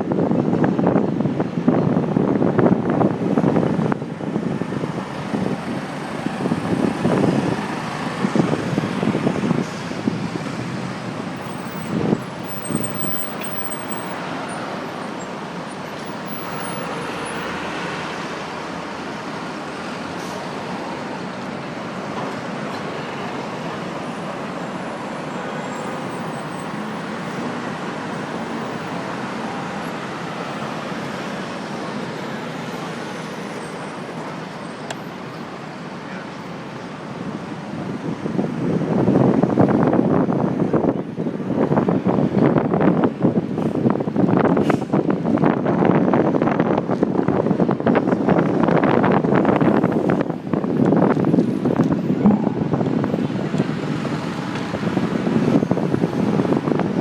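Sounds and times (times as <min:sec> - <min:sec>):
wind buffeting microphone: 0:00.0 - 0:13.2, 0:37.6 - 0:57.0
city street traffic: 0:00.0 - 0:57.0.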